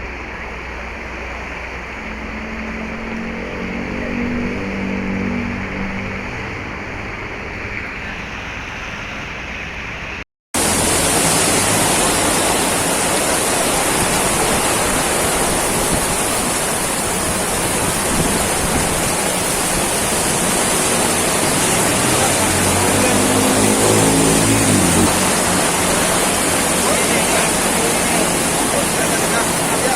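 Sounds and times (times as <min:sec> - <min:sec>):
heavy rain hissing: 0:10.6 - 0:29.9.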